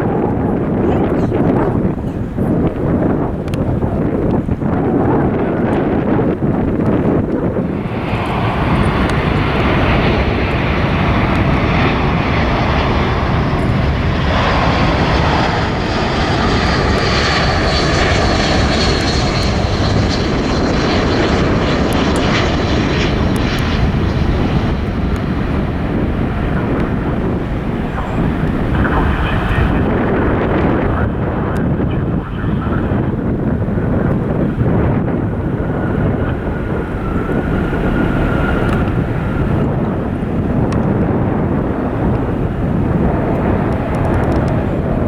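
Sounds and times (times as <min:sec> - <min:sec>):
high jet whine falling: 0:00.0 - 0:45.0
jet engines rushing: 0:00.0 - 0:45.0
wind buffeting microphone: 0:00.0 - 0:45.0.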